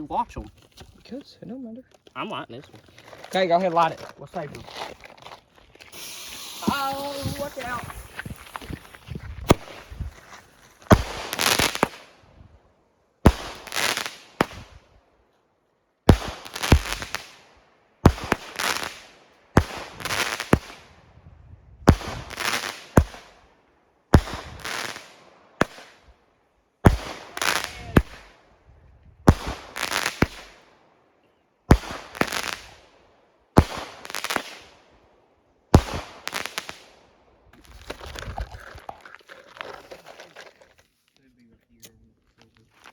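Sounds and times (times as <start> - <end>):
fireworks bangs with crackle: 5.8 - 12.2, 13.2 - 14.9, 16.1 - 21.0, 21.8 - 23.4, 24.1 - 26.0, 26.8 - 28.4, 29.2 - 30.6, 31.7 - 34.8, 35.7 - 37.0.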